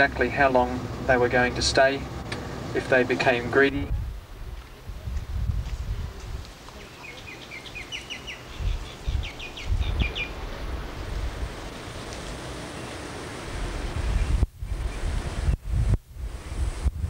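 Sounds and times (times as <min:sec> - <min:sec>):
wind gusts on microphone: 0:02.0 - 0:17.0
bird chirping rapidly: 0:06.8 - 0:10.4.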